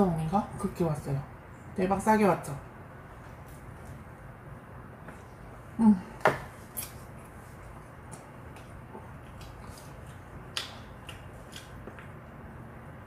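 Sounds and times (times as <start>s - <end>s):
crisp chewing clicks and smacks: 8.0s - 12.4s.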